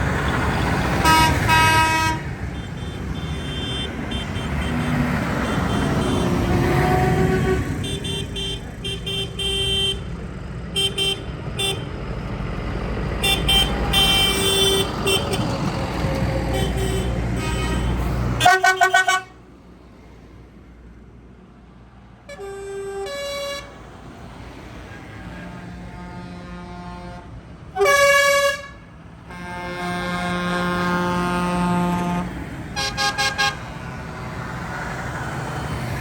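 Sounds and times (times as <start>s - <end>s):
tractor horns tooting: 0.0s - 12.0s, 13.2s - 19.4s, 22.2s - 23.8s, 24.8s - 33.8s
tractor engines running: 0.0s - 36.0s.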